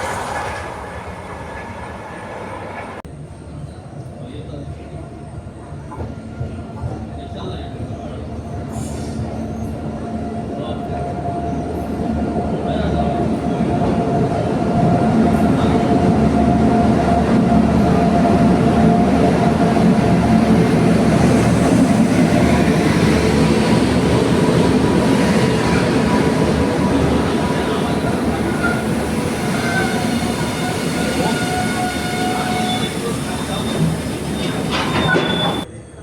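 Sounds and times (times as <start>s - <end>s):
train rumbling on rails: 0.0s - 36.0s.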